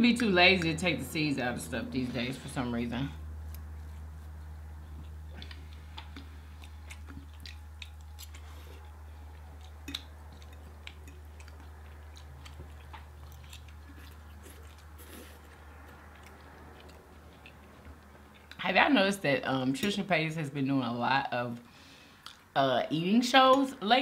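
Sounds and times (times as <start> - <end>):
low steady hum: 0.0 - 24.0
chewing with wet mouth clicks: 3.4 - 18.6, 22.1 - 22.5.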